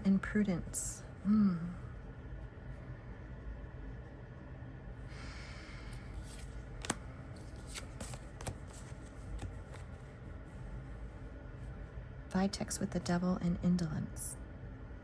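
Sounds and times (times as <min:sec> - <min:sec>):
cards sliding rustle: 0:05.9 - 0:10.1
cards clicking and tapping: 0:06.2 - 0:09.9.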